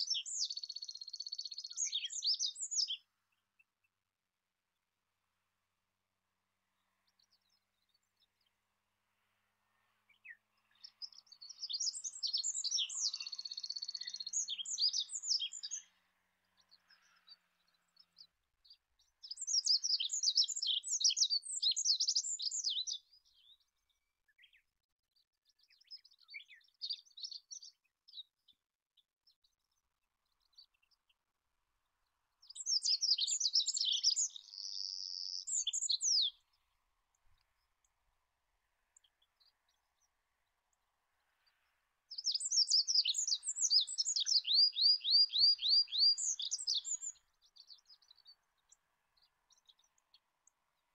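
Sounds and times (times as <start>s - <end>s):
bird singing high jumbled notes: 0.0s - 3.1s, 10.1s - 24.6s, 25.4s - 28.5s, 32.4s - 36.6s, 41.4s - 50.3s.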